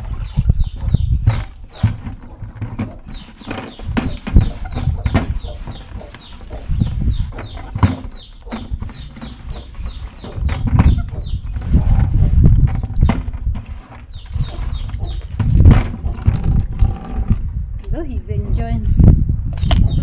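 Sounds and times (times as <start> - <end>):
chicks peeping: 0.0 - 12.1, 14.0 - 15.4, 19.6 - 20.0
bucket knocks and handling: 0.0 - 17.4.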